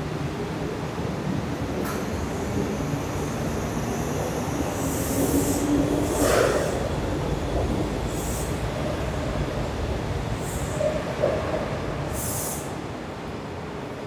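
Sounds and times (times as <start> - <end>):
electric train rumbling: 0.0 - 14.0
short hissing bursts: 12.1 - 12.8.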